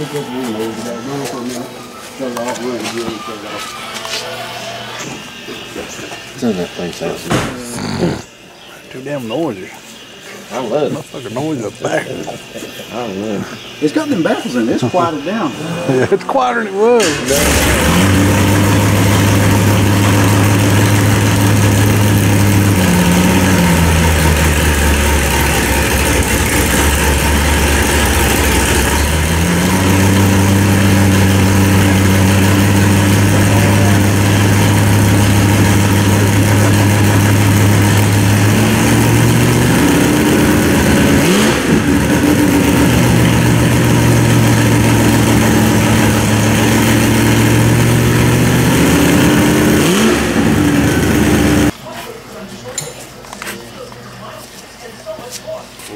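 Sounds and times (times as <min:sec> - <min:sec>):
engine rev: 0:17.0 - 0:51.8
car engine idling loud exhaust: 0:17.3 - 0:51.7.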